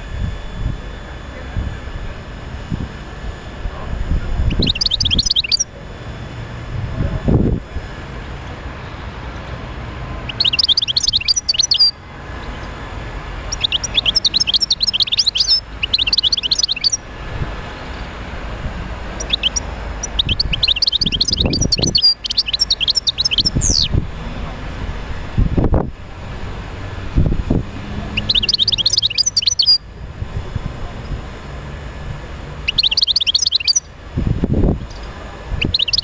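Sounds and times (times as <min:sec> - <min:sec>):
goldfinch twittering song: 0:04.4 - 0:05.7, 0:10.2 - 0:12.8, 0:13.4 - 0:17.1, 0:19.1 - 0:24.0, 0:28.1 - 0:29.9, 0:32.6 - 0:33.9, 0:34.8 - 0:36.0.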